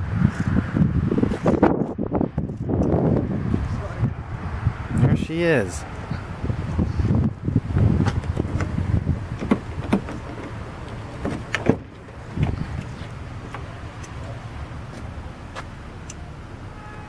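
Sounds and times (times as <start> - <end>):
truck door clicks and knocks: 8.0 - 14.2.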